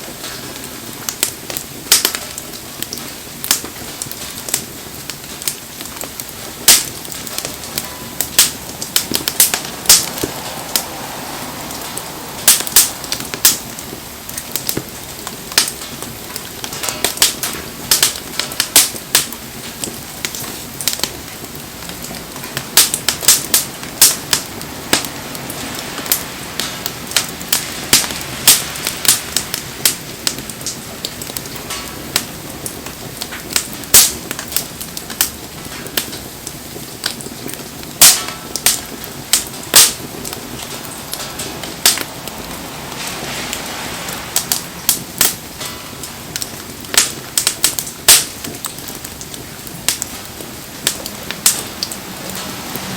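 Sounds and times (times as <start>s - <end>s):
rain hiss: 0.0s - 52.9s
wood bonfire crackling and popping: 0.0s - 52.9s.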